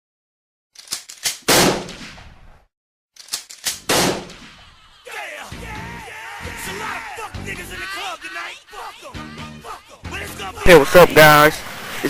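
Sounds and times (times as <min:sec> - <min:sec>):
quick clicks: 0:00.8 - 0:01.5, 0:03.2 - 0:04.6
gunshots: 0:01.4 - 0:02.4, 0:03.7 - 0:04.7
music: 0:05.4 - 0:11.2.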